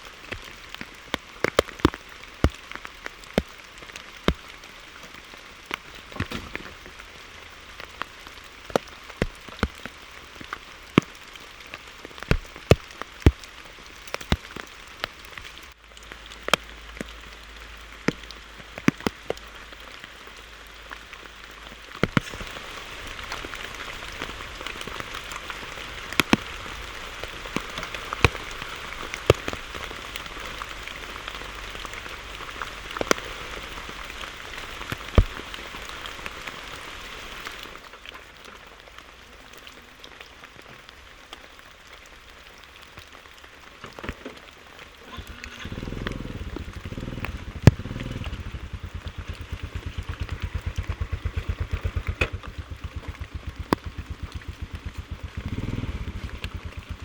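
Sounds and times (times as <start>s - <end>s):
heavy raindrops clicking: 0.0s - 57.0s
rain pattering: 0.0s - 57.0s
motorcycle engine idling: 45.2s - 57.0s.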